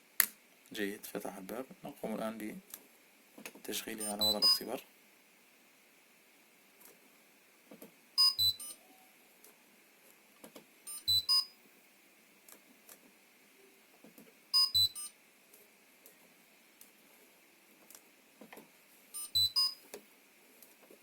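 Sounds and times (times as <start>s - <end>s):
short high electronic beeps: 4.0s - 4.7s, 8.2s - 8.8s, 10.9s - 11.6s, 14.6s - 15.1s, 19.2s - 19.8s.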